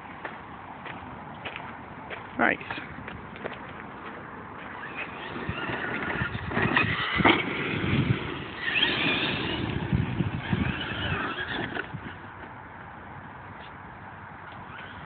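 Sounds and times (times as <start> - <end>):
chassis and tyres clattering: 3.3 - 12.7
electric motors whining: 4.6 - 12.5.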